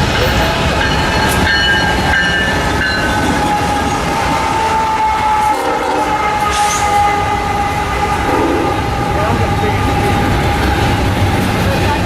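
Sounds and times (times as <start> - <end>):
moving train rumble: 0.0 - 12.0
train horn chord: 3.5 - 10.8.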